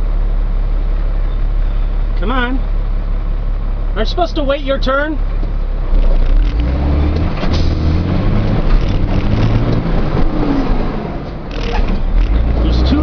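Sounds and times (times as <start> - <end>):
truck engine rumble from cab: 0.0 - 13.0.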